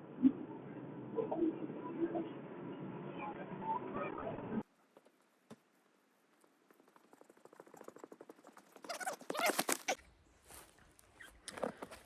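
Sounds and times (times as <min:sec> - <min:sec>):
crunching footsteps: 0:09.3 - 0:12.0
light footsteps on ground: 0:10.4 - 0:12.0.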